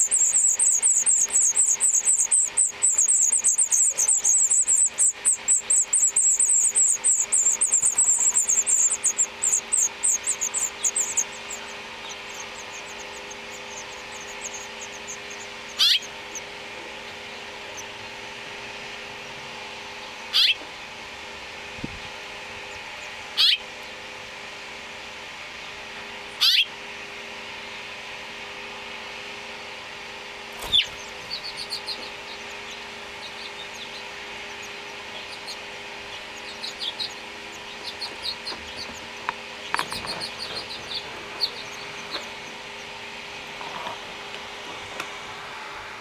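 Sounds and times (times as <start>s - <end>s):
bird calls rising in pitch: 0.0s - 18.0s
nestlings cheeping: 0.0s - 20.6s, 30.5s - 43.6s
faint steady hum: 0.0s - 46.0s.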